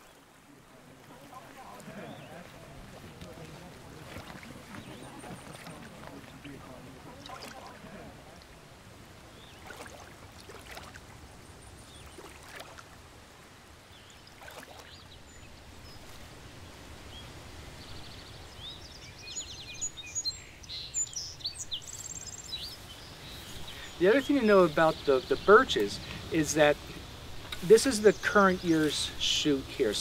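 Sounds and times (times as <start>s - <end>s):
small birds chirping and trilling: 3.3s - 7.8s, 9.3s - 9.9s, 17.1s - 30.0s.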